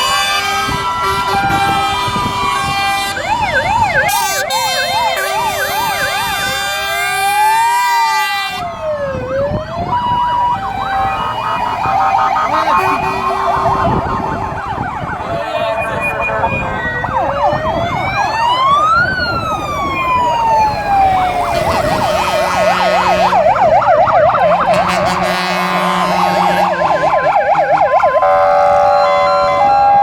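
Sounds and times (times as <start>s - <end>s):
fire engine siren wailing: 0.0s - 30.0s
two-tone alternating siren: 0.0s - 30.0s
siren fast warbling yelps: 2.5s - 8.8s, 9.4s - 30.0s.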